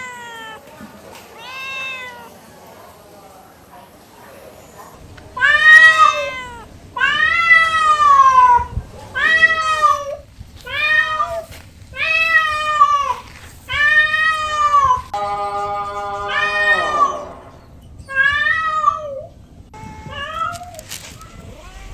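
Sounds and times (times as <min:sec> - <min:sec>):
cat meowing: 0:00.0 - 0:02.4, 0:04.6 - 0:15.2, 0:18.0 - 0:21.9.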